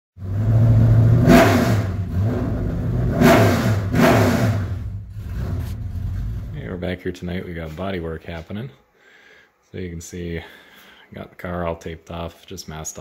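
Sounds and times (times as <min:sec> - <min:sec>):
car engine revving: 0:00.2 - 0:06.7.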